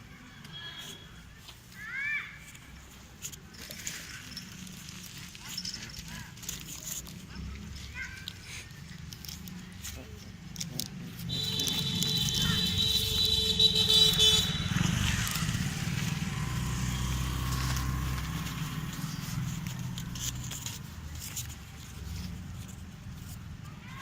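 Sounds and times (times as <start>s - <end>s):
vehicle engines passing: 0.0s - 24.0s
vehicle horn: 11.3s - 15.1s.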